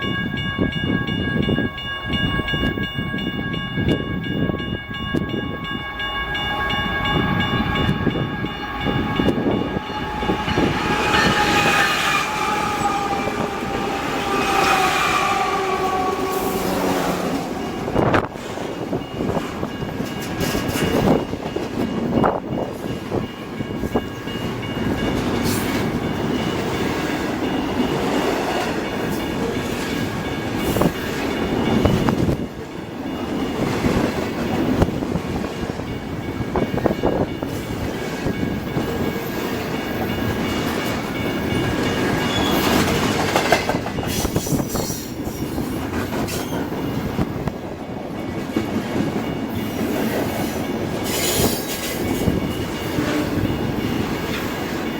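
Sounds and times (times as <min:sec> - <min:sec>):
freight train cars rumbling: 0:00.0 - 0:54.9
high-pitched wheel squeal: 0:08.7 - 0:17.1
wheels clicking over rail joints: 0:39.9 - 0:52.4.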